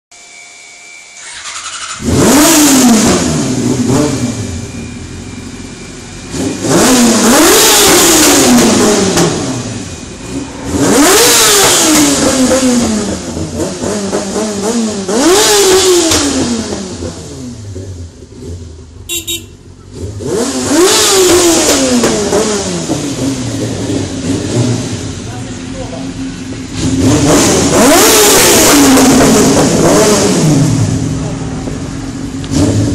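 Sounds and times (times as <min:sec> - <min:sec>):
motorcycle engine revving in tunnel: 0:01.2 - 0:32.9.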